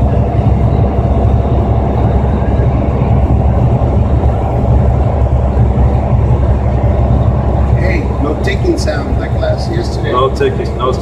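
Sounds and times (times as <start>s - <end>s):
car interior road noise: 0.0s - 11.0s.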